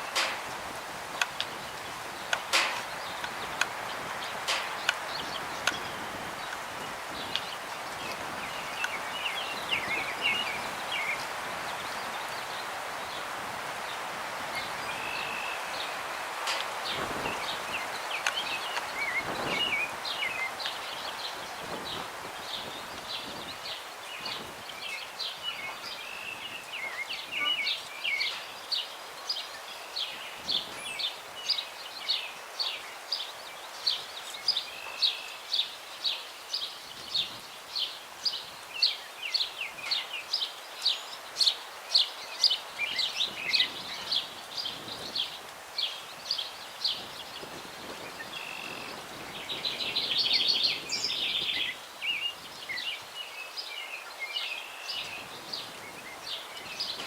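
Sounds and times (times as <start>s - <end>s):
breeze through trees: 0.0s - 57.0s
busy bird song: 0.0s - 57.0s
songbird repeating high call: 25.5s - 28.6s, 48.3s - 49.0s.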